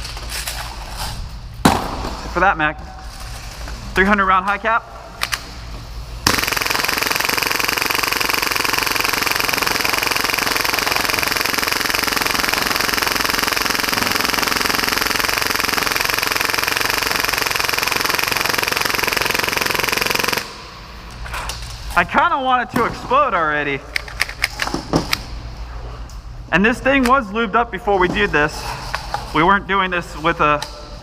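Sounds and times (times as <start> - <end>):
airsoft pistol full-auto firing: 6.2 - 20.6.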